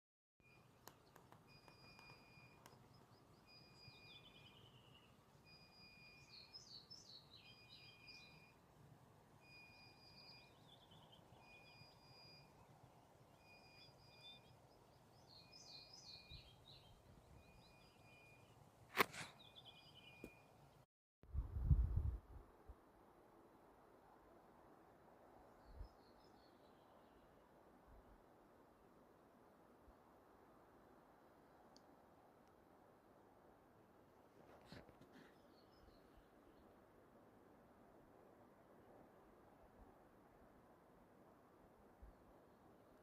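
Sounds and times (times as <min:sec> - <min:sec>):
songbird whistles and trills: 0:01.5 - 0:08.5
sharp click: 0:18.9 - 0:19.4.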